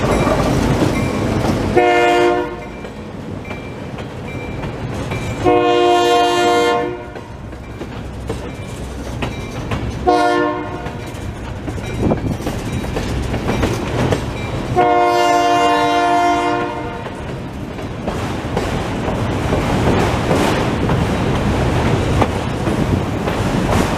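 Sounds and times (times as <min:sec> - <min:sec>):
steel wheels clattering on rails: 0:00.0 - 0:06.1, 0:06.8 - 0:23.9
locomotive horn blasts: 0:01.8 - 0:02.7, 0:05.4 - 0:07.3, 0:10.0 - 0:11.0, 0:14.8 - 0:17.1.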